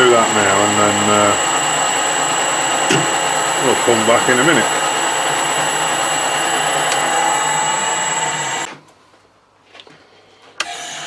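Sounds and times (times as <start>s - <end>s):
metal lathe running: 0.0s - 8.7s
sharp click: 2.9s - 3.2s.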